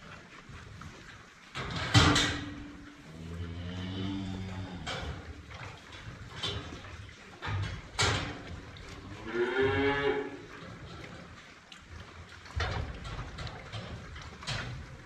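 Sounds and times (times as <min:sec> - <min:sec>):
cattle mooing: 0:03.0 - 0:05.3, 0:09.0 - 0:10.6.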